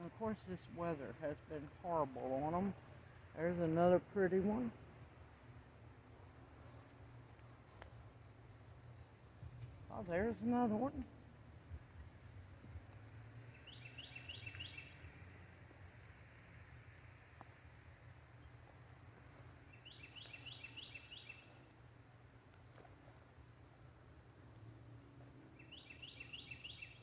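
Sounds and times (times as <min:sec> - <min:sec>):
songbird singing rapid notes: 0:00.0 - 0:21.7, 0:24.4 - 0:27.0.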